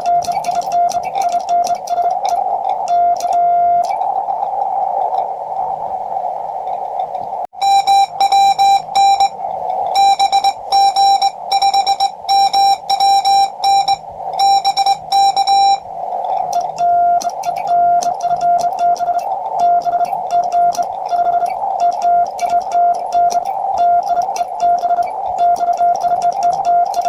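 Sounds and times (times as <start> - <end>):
morse code tone: 0.0 - 3.9, 7.6 - 15.9, 16.5 - 27.0
shortwave receiver hiss: 0.0 - 27.0.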